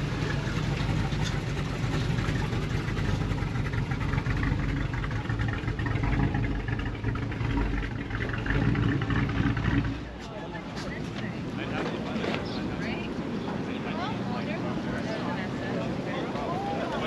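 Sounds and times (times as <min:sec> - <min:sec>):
car engine running: 0:00.0 - 0:13.3.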